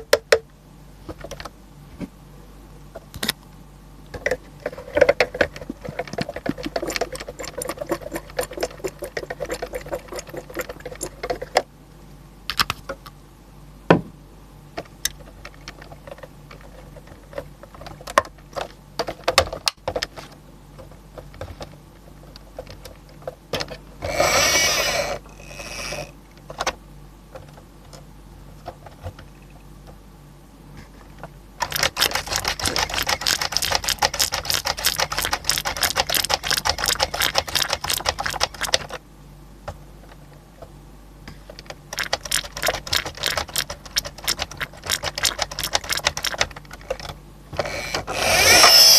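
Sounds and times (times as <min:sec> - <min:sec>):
toy trucks clicking and rattling: 0:31.6 - 0:38.9.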